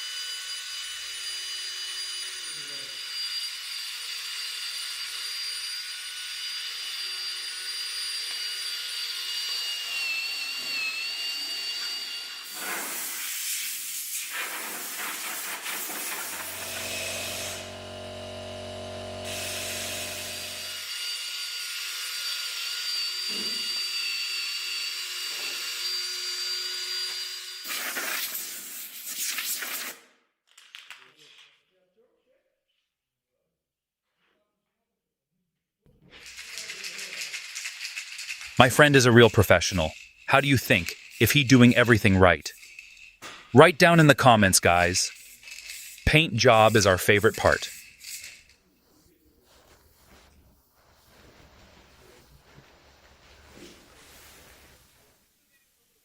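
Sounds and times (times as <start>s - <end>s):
paint spray gun hissing: 14.6s - 20.7s.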